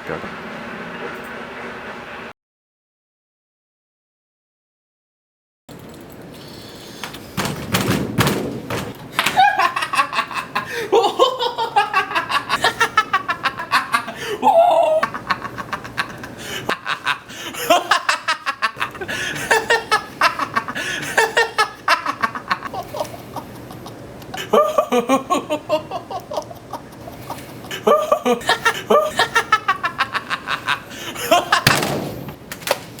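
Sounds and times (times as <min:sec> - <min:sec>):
person laughing heartily: 0:09.1 - 0:31.8.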